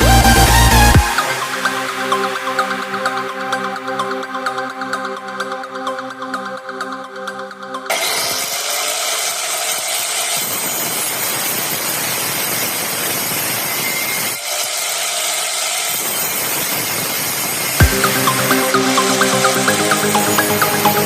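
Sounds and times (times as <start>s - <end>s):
angle grinder cutting with high whine: 7.9s - 18.1s.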